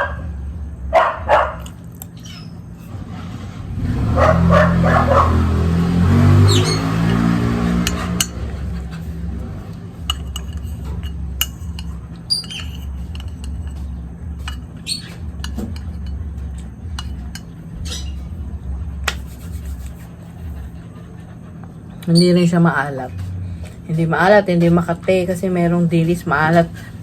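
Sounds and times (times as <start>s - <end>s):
steady low hum: 0.0s - 27.0s
spoon clinking on a plate: 7.9s - 8.5s, 10.0s - 17.6s.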